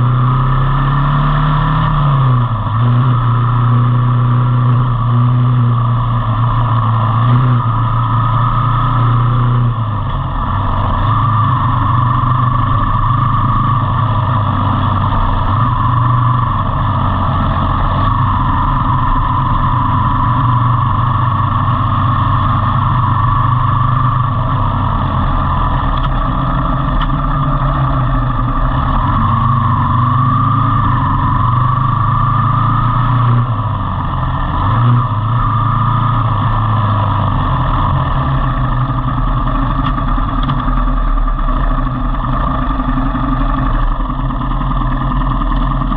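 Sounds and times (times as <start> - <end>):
road and wind noise: 0.0 - 45.9
vehicle engine humming: 0.0 - 45.9.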